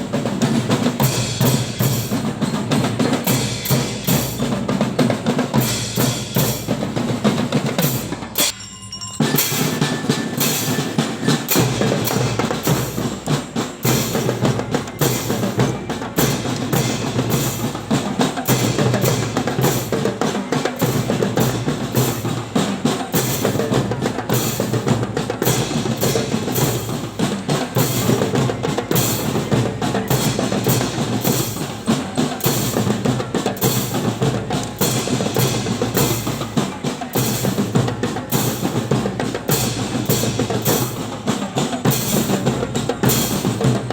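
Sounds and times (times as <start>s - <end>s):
fast drumming: 0.0s - 8.6s, 9.2s - 43.9s.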